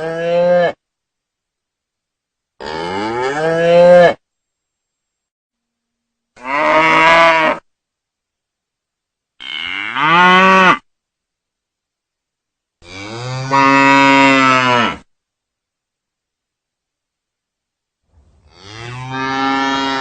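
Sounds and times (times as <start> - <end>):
cow mooing: 6.4 - 7.6, 9.4 - 10.8, 12.8 - 15.0, 18.4 - 20.0.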